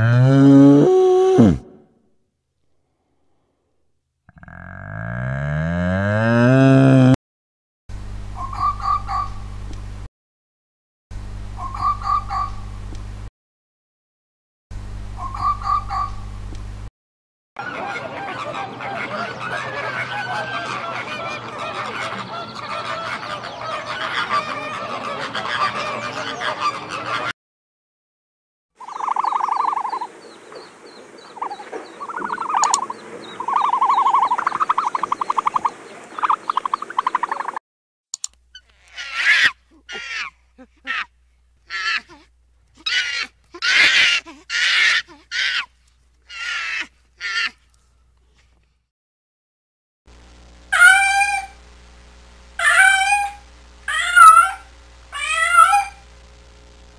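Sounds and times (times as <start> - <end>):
birds honking in chorus: 8.4 - 9.4, 11.6 - 12.6, 15.2 - 16.2, 17.6 - 27.3, 28.8 - 37.6, 52.6 - 56.0
monkey giving harsh calls: 11.6 - 12.6, 15.2 - 16.2, 17.6 - 27.3, 38.6 - 41.1, 41.7 - 45.7, 46.3 - 47.6, 50.7 - 51.6, 52.6 - 56.0.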